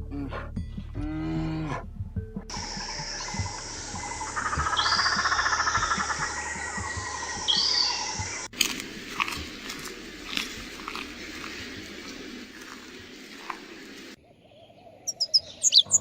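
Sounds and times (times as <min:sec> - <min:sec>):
animal trill and high chirps: 0:02.5 - 0:16.0.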